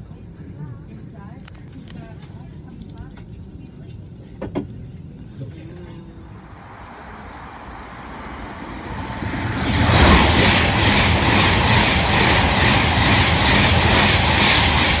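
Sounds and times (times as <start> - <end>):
passenger train passing: 6.1 - 15.0.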